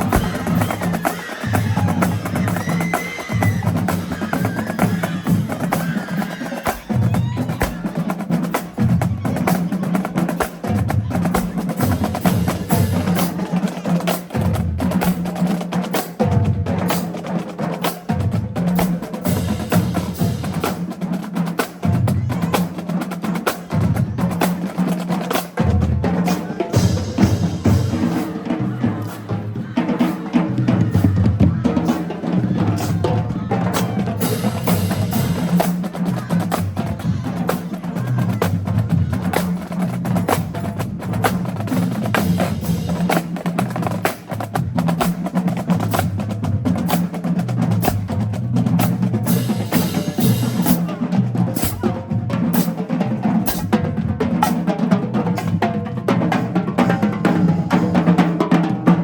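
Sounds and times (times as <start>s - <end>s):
pitched bass drums: 0.0s - 6.1s
snare drum strokes and rolls: 0.0s - 59.0s.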